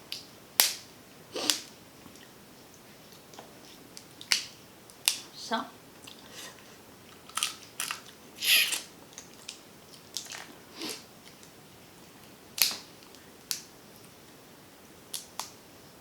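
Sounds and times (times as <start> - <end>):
quiet chewing: 6.0 - 11.5
crab shell cracking: 7.1 - 9.6.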